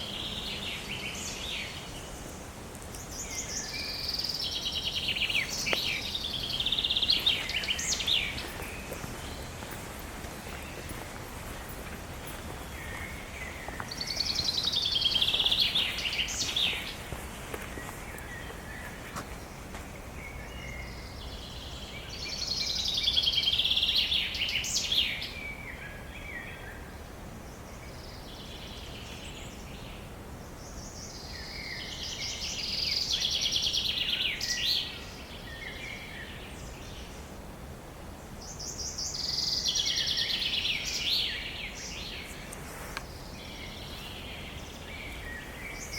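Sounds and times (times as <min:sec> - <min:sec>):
low background hiss: 0:00.0 - 0:45.9.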